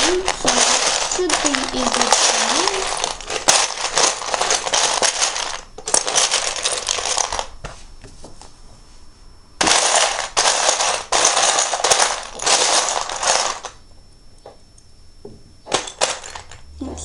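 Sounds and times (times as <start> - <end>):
plastic bricks clattering: 0.0 - 7.6, 9.6 - 13.8, 15.7 - 16.6.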